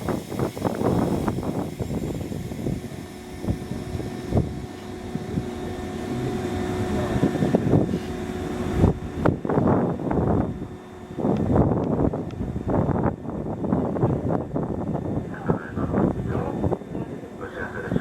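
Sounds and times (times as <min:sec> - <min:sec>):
steady held tone: 0:00.0 - 0:11.1
train running rumble: 0:00.0 - 0:18.0.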